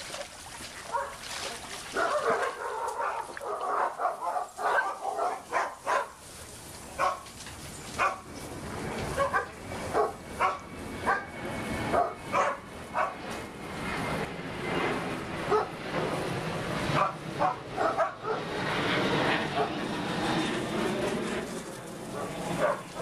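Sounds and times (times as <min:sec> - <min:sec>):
dogs barking: 0:00.8 - 0:01.2, 0:01.9 - 0:06.2, 0:07.0 - 0:07.3, 0:08.0 - 0:08.3, 0:09.1 - 0:13.2, 0:15.5 - 0:15.8, 0:16.9 - 0:18.5, 0:19.5 - 0:19.8, 0:22.1 - 0:23.0.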